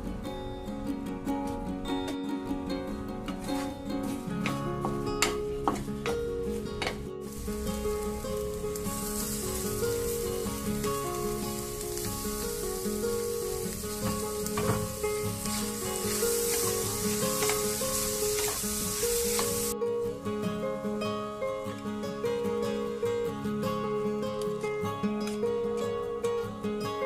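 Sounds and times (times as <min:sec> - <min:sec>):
light background music: 0:00.0 - 0:27.0
food sizzling in a pan: 0:07.2 - 0:19.8
stirring strokes: 0:07.3 - 0:19.7.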